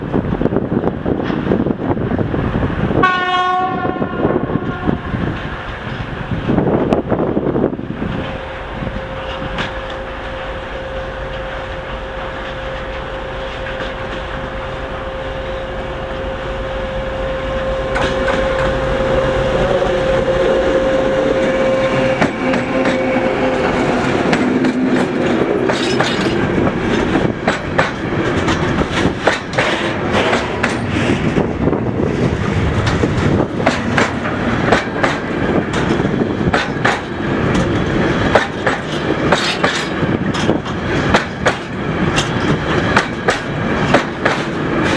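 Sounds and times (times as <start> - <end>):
diesel locomotive engine running: 4.0 - 44.9
train wheels clicking over rail joints: 4.6 - 15.0, 17.5 - 44.9
steady whine: 8.2 - 36.8.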